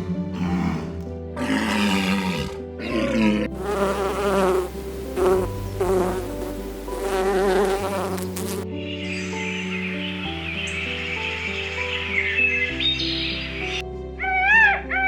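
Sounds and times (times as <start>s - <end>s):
background music: 0.0s - 15.0s
insect buzzing: 1.4s - 8.6s.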